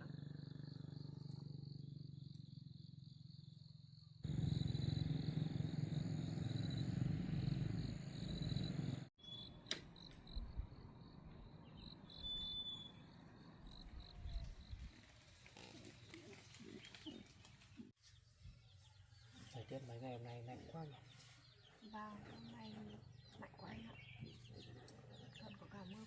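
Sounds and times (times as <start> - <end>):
insects trilling: 0.0 - 17.3.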